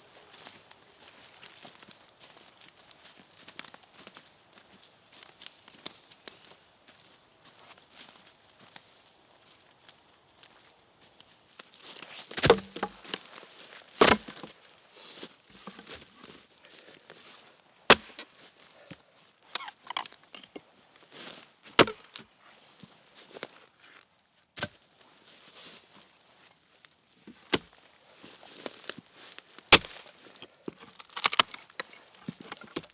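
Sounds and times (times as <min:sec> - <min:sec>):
blade chopping wood: 0:12.3 - 0:13.3, 0:14.0 - 0:14.5, 0:15.6 - 0:15.9, 0:17.9 - 0:18.3, 0:19.5 - 0:20.6, 0:21.8 - 0:22.1, 0:29.7 - 0:30.1, 0:30.7 - 0:32.9.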